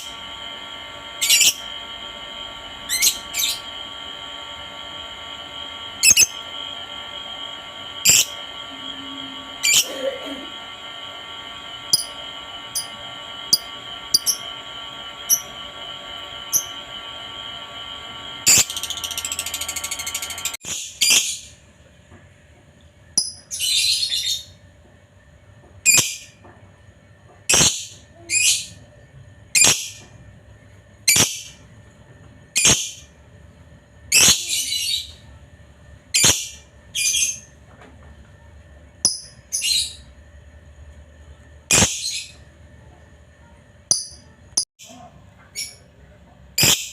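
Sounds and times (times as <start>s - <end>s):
steady hum: 0.0s - 46.9s
lovebird chirping: 6.0s - 6.5s, 8.0s - 8.4s.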